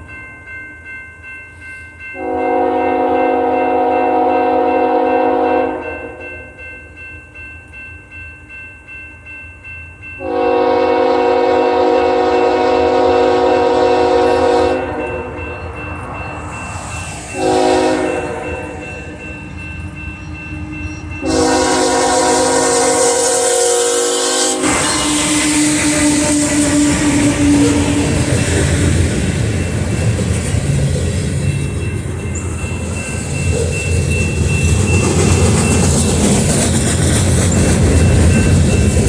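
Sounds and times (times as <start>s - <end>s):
freight train rumbling by: 0.8s - 8.1s, 10.0s - 39.0s
locomotive air horn blasts: 2.2s - 6.2s, 10.2s - 15.0s, 17.4s - 18.8s, 21.2s - 28.3s.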